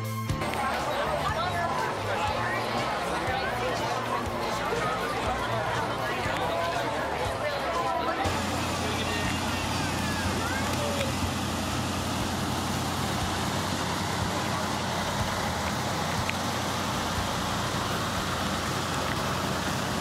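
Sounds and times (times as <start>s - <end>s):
car engine idling: 0.4s - 20.0s.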